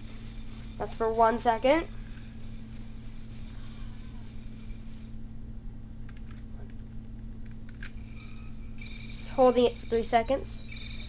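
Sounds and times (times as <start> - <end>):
warbling electronic toy sound: 0.0 - 5.2, 7.9 - 11.0.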